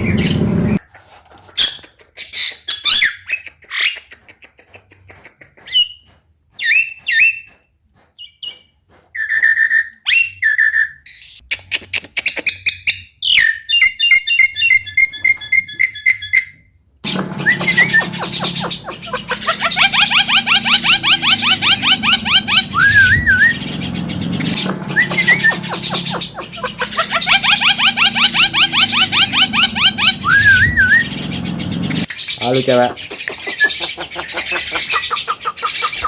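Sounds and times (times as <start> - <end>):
myna singing and chattering: 17.0 - 32.1.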